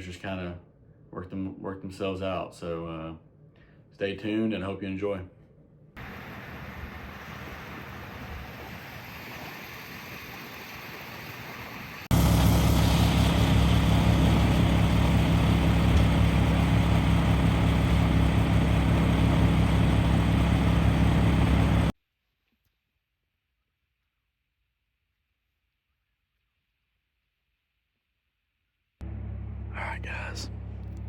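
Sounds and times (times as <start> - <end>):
outboard motor running: 12.1 - 21.9.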